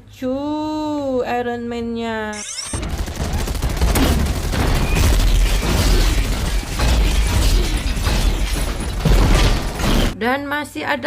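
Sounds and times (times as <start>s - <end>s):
loud booms: 2.8s - 10.2s
rapid crackling bangs: 2.8s - 10.2s.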